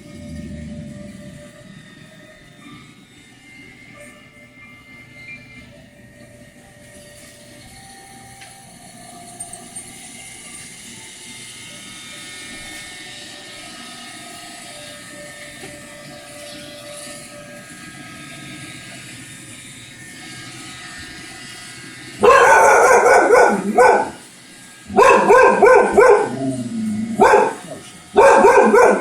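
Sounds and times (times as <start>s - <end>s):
robot vacuum humming: 0.0s - 29.0s
dog barking: 22.2s - 24.2s, 24.9s - 26.4s, 27.2s - 29.0s.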